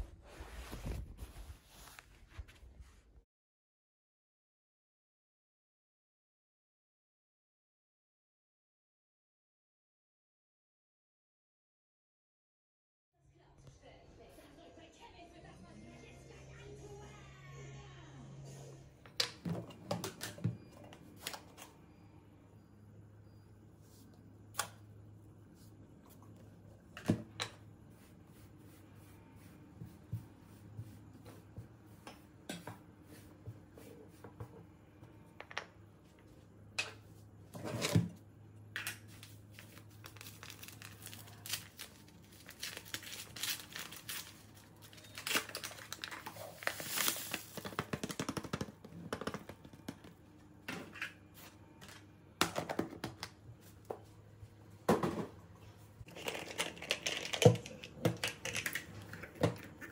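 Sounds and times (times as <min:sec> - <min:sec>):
crinkling and rustling: 0:00.0 - 0:03.2, 0:39.0 - 0:50.2, 0:56.0 - 0:59.9.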